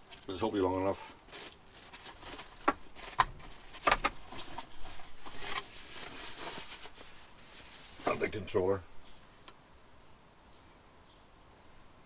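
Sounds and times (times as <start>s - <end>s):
packaging rustling: 1.0s - 8.4s.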